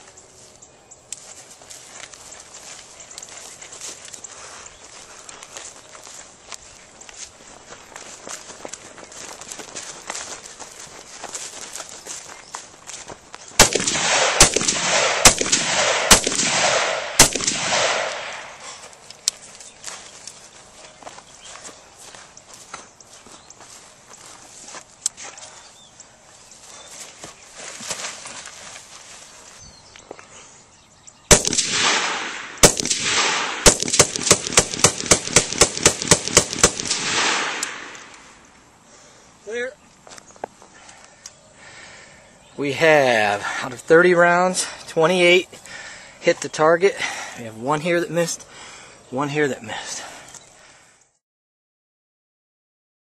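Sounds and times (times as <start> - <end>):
rifle shots with echo: 13.6 - 18.7, 31.3 - 38.3.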